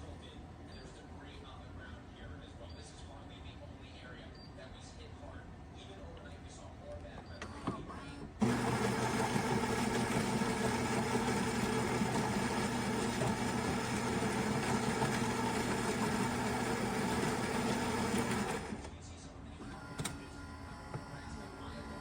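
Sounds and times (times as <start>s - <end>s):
espresso machine humming: 8.4s - 18.9s.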